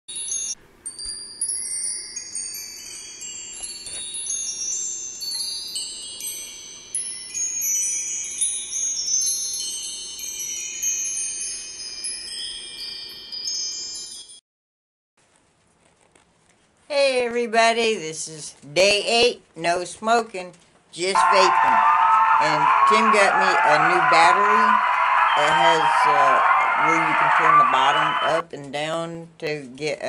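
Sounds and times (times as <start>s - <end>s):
chimes ringing: 0.1s - 14.4s, 21.2s - 28.4s.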